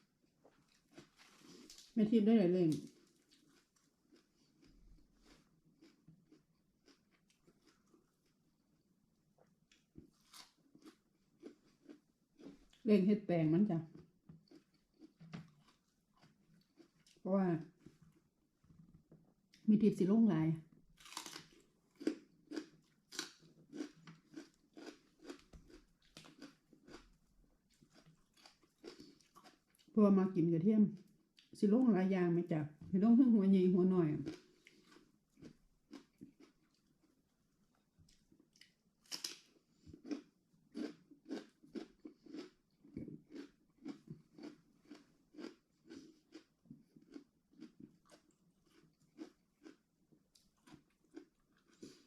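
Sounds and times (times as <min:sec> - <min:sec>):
person chewing crunchy food: 0:00.1 - 0:02.0, 0:02.8 - 0:08.7, 0:09.4 - 0:12.8, 0:13.9 - 0:17.2, 0:21.0 - 0:30.0, 0:34.2 - 0:52.0.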